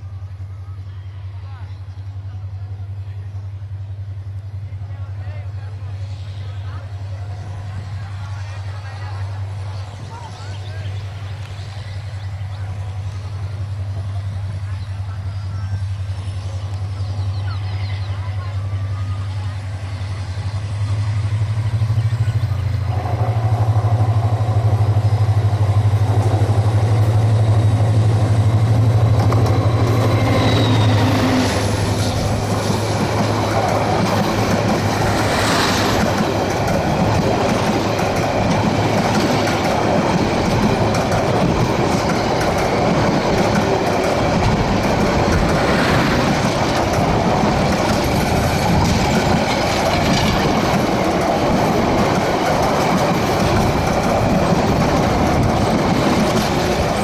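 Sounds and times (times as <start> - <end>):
diesel locomotive engine drone: 0.0 - 57.0
train wheels rumbling and clattering: 2.0 - 57.0.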